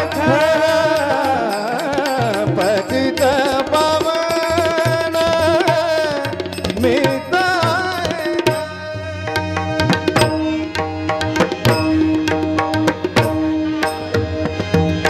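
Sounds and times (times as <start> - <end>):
person singing with vibrato: 0.0 - 10.4
tabla drumming: 0.0 - 15.0.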